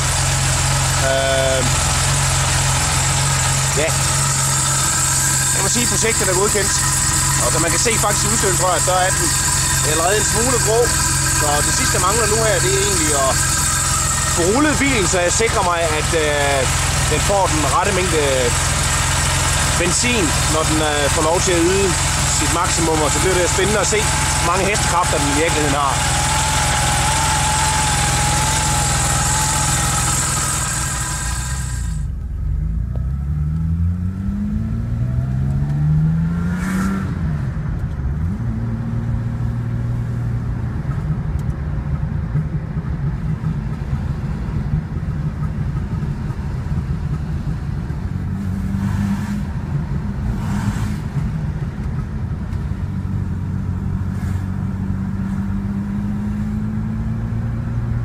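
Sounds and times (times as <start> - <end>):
car engine idling unevenly: 0.0 - 33.3, 39.4 - 48.6, 49.4 - 55.3
car accelerating through gears: 1.0 - 32.0, 32.6 - 37.6, 48.2 - 51.3, 53.0 - 58.0
wavering whine: 3.0 - 32.3.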